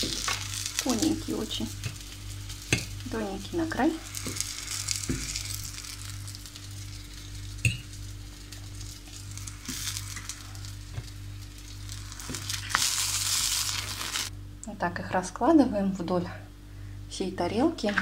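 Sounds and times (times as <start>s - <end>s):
food sizzling in a frying pan: 0.0s - 14.3s.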